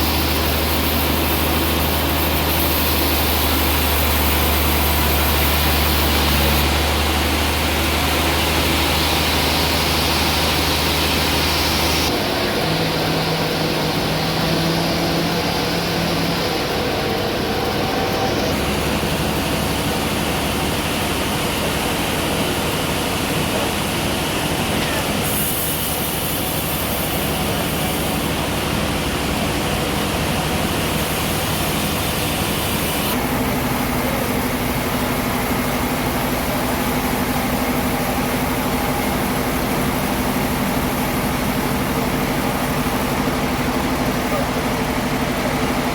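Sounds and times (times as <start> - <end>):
sawmill sawing log: 0.0 - 45.9.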